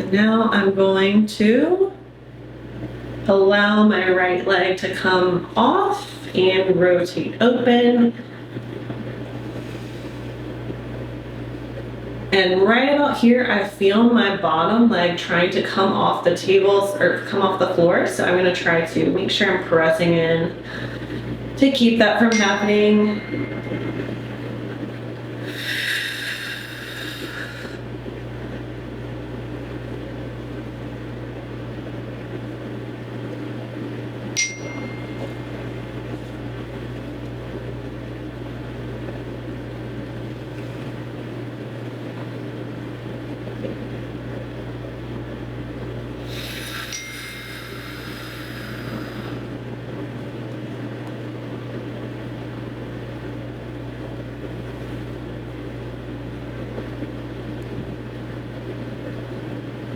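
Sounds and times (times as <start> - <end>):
low electrical hum: 0.0 - 59.9
sharp ringing click: 22.3 - 24.2, 34.4 - 35.5, 46.9 - 47.4.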